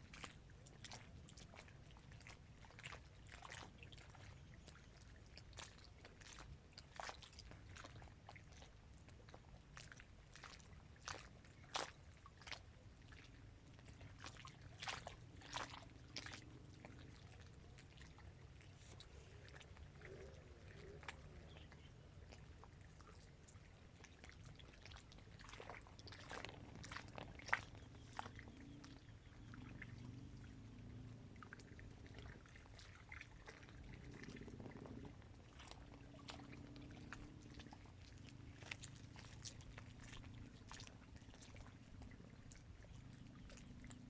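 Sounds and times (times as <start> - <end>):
low steady background: 0.0 - 44.0
small waves lapping: 0.0 - 44.0.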